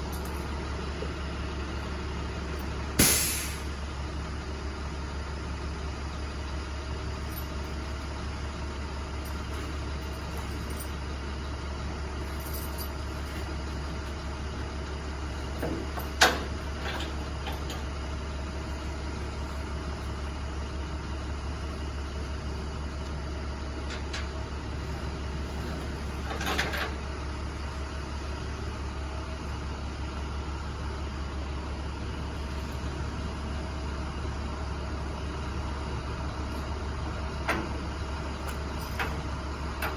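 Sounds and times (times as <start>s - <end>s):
truck engine idling: 0.0s - 39.9s
sharp bang: 3.0s - 3.6s.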